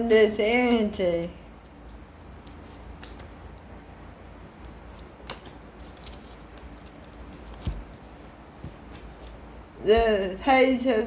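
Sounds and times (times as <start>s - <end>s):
cards being shuffled: 2.4s - 3.4s, 4.6s - 9.5s.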